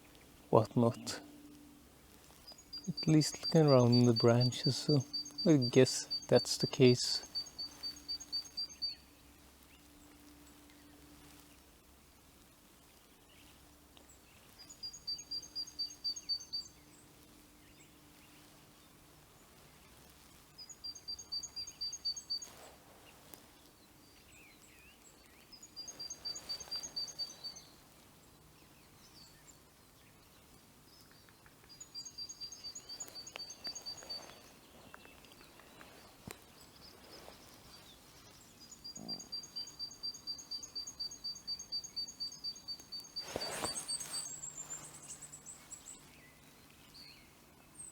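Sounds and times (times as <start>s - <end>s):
songbird trilling: 2.5s - 9.0s, 20.6s - 22.5s, 25.6s - 27.8s, 31.2s - 46.1s.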